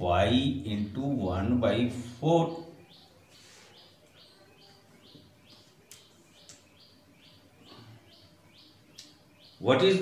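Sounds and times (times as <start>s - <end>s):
faint bird chirping: 0.0s - 10.0s.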